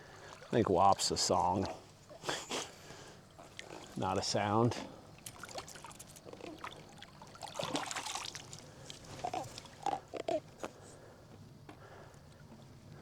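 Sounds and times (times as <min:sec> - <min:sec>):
wet splashes and drips: 0:03.3 - 0:04.1, 0:05.1 - 0:10.0
fish grunting squeaks: 0:09.1 - 0:10.6.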